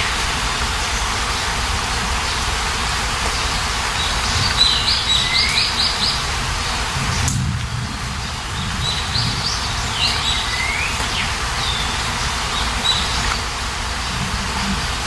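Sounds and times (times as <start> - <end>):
birds chirping: 0.0 - 15.0
steady rain: 0.0 - 15.0.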